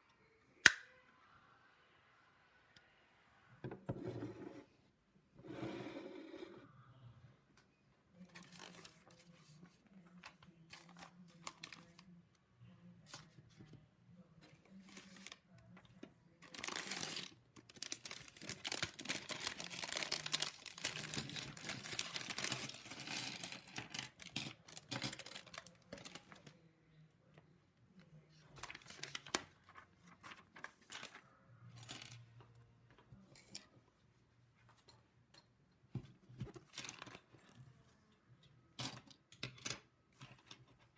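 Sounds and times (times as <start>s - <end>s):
plastic rustling and crinkling: 8.2s - 12.1s, 16.4s - 26.6s.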